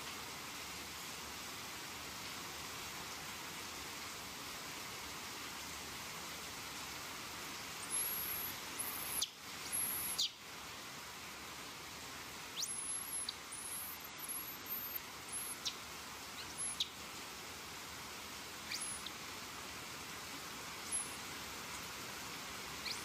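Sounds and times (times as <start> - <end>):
heavy rain hiss: 0.0 - 23.0
high downward-sweeping chirps: 7.8 - 10.3, 12.6 - 15.8.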